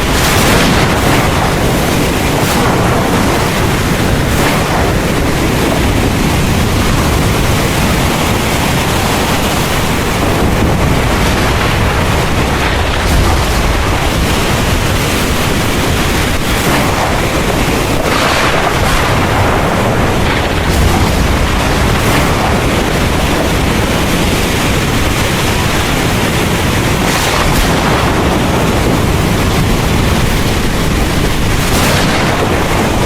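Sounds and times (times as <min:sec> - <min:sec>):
heavy rain falling: 0:00.0 - 0:33.0
low rolling thunder: 0:00.0 - 0:33.0.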